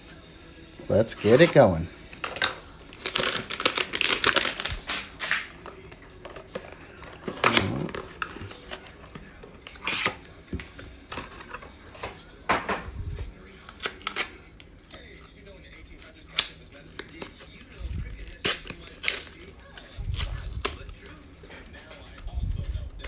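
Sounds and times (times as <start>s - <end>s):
plastic wrapper crinkling: 1.2s - 10.1s
cardboard tearing: 1.2s - 10.3s, 13.5s - 15.1s, 16.9s - 21.2s
packaging clicks and swishes: 1.2s - 12.1s.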